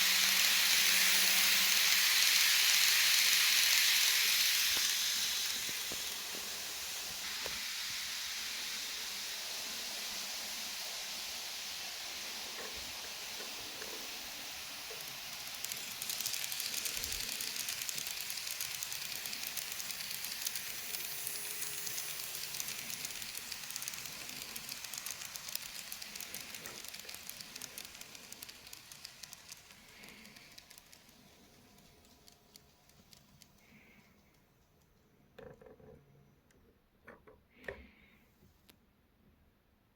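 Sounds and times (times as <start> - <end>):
rapid fine clicking: 0.0 - 7.5, 14.9 - 34.9
model train wheel and motor hiss: 0.0 - 34.6.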